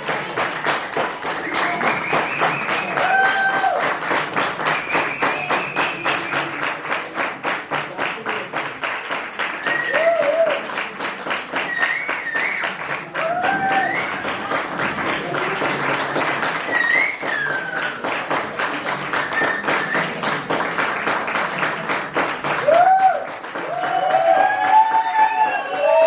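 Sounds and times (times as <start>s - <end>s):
audience clapping: 0.0s - 26.0s
crowd whoops and shouts: 1.4s - 3.9s, 9.6s - 10.7s, 11.7s - 14.5s, 16.7s - 18.0s, 22.6s - 26.0s.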